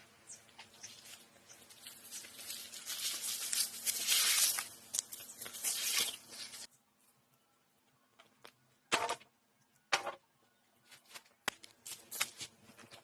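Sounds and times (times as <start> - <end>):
rough rustling and tearing: 0.9 - 6.7.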